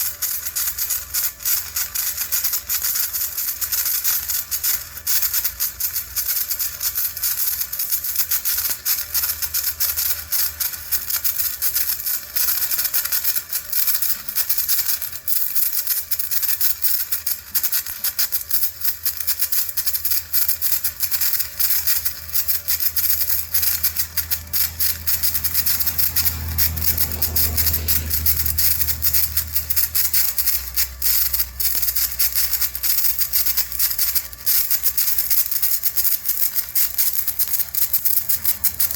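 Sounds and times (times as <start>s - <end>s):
welding arc crackling: 0.0s - 38.9s.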